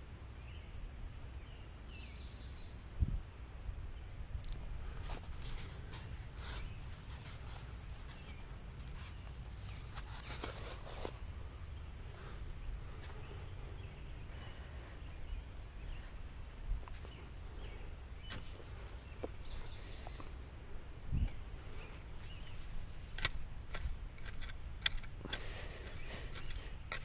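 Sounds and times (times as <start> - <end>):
hands working soil: 4.8 - 11.3, 21.7 - 27.0.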